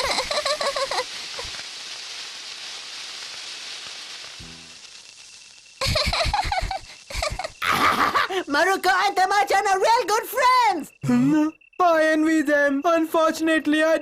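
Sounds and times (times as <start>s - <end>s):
firework fizzing: 0.0s - 10.8s.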